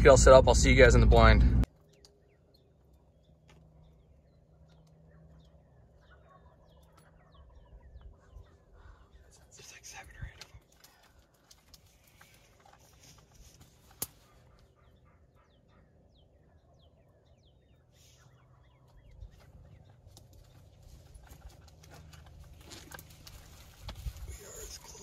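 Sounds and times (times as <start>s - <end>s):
low steady rumble: 0.0s - 1.7s
faint bird chirps: 1.7s - 21.4s.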